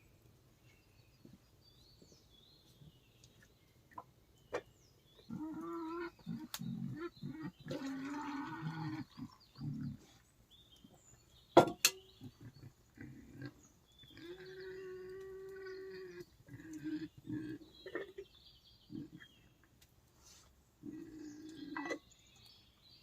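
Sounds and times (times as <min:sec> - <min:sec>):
wild boar grunting and squealing: 0:05.2 - 0:10.2, 0:12.1 - 0:19.4, 0:20.8 - 0:22.1.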